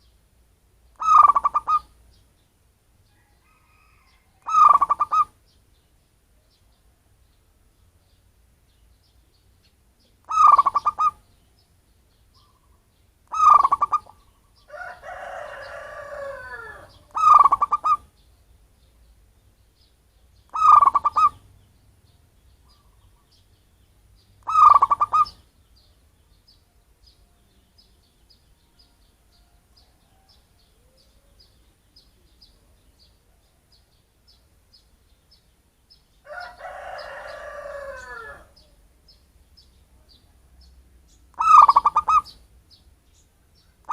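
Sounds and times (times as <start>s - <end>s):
dove cooing: 1.0s - 1.9s, 4.4s - 5.3s, 10.3s - 11.3s, 13.3s - 18.1s, 20.5s - 21.4s, 24.4s - 25.4s, 41.4s - 42.4s.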